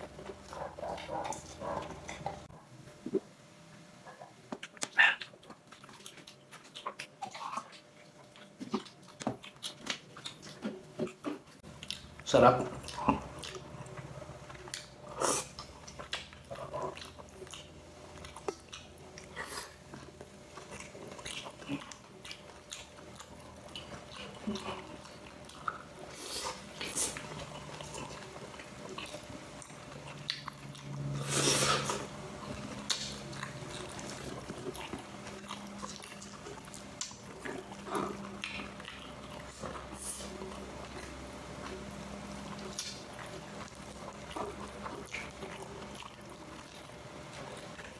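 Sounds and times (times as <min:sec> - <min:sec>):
person chewing and biting: 0:12.8 - 0:47.9.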